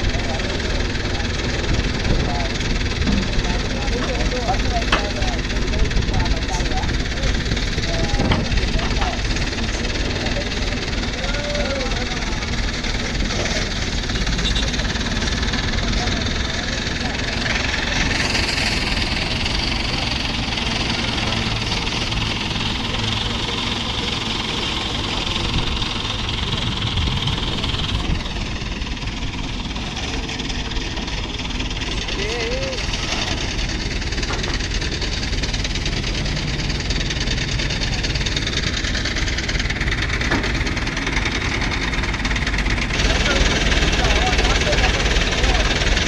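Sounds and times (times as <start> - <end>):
tractor diesel engine running: 0.0 - 46.0.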